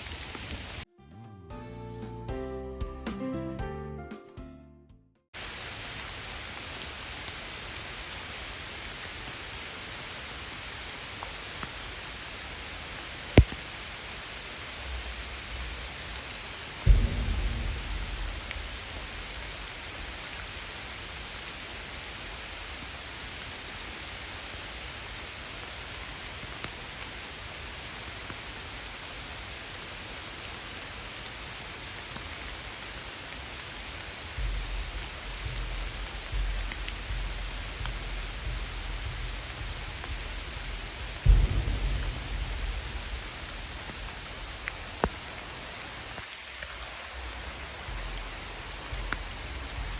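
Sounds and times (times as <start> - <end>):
steady rain falling: 0.0 - 0.9, 5.4 - 49.9
low rumbling: 14.9 - 21.3, 34.2 - 45.8, 47.1 - 49.9
low thump: 16.8 - 20.3, 34.4 - 45.1.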